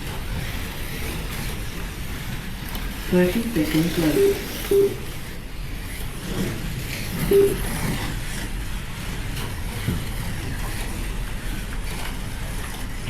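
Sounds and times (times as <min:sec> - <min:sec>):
slot car motors whirring: 0:00.0 - 0:13.0
short beep: 0:04.2 - 0:05.0, 0:07.3 - 0:07.7.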